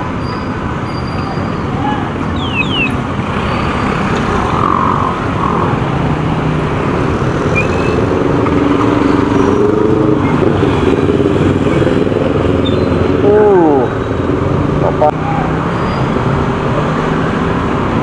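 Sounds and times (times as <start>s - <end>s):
road noise: 0.0s - 18.0s
motorcycle engine: 2.8s - 15.6s.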